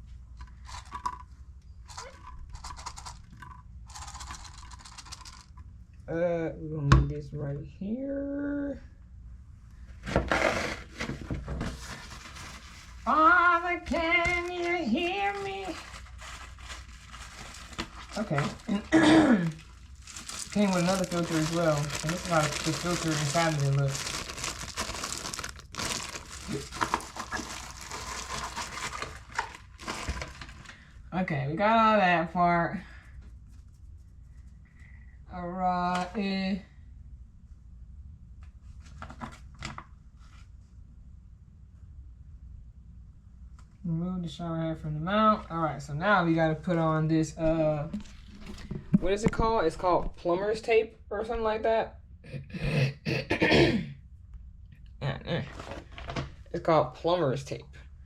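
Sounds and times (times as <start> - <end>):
packaging rustling and crinkling: 10.0 - 13.1, 13.9 - 30.8, 47.9 - 49.4.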